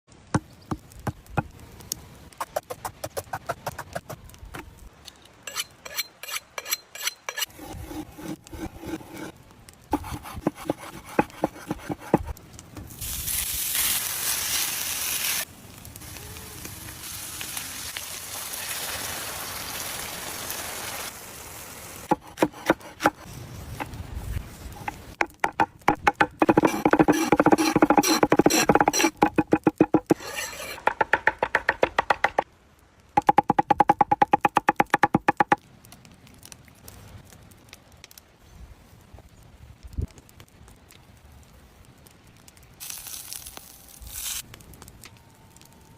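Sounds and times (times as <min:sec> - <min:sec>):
food sizzling in frying: 0:12.9 - 0:25.2, 0:25.9 - 0:32.2, 0:42.8 - 0:44.5
knife tapping on a board: 0:30.9 - 0:32.4.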